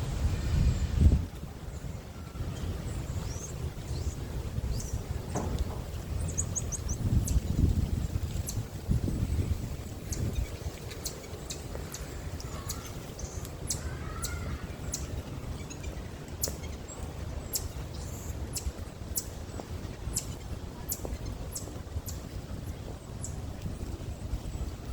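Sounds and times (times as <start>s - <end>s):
low wind-like rumble: 0.0s - 24.9s
marmosets chirping: 3.2s - 22.4s, 23.2s - 23.4s
soft gliding monkey calls: 10.1s - 19.4s.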